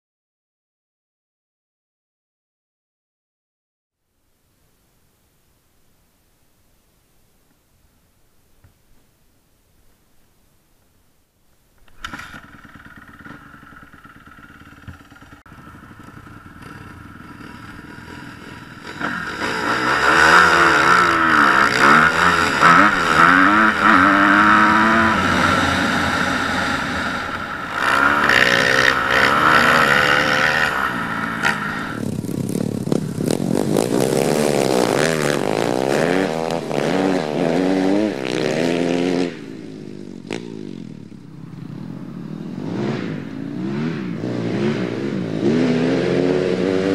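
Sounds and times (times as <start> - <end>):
dirt bike engines revving: 11.9 - 46.9.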